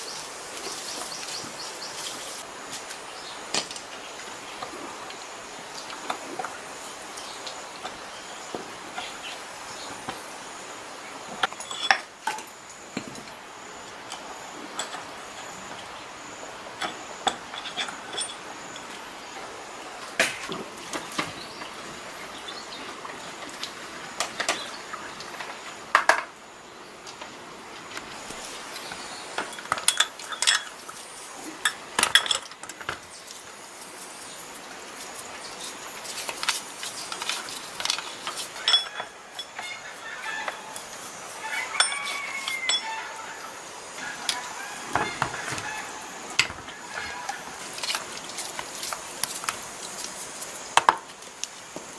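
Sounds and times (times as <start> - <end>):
faint hiss: 0.0 - 18.0
metal tools clinking: 11.4 - 12.5, 16.8 - 18.9, 29.4 - 33.4, 35.5 - 43.2.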